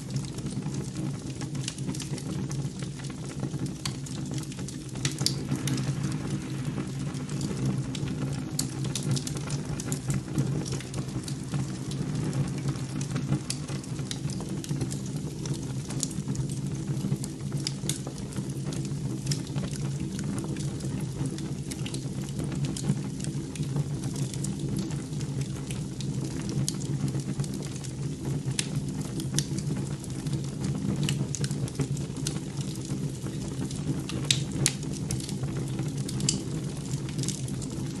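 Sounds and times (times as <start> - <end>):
wood fire crackling: 0.0 - 38.0
steady low hum: 5.0 - 15.5.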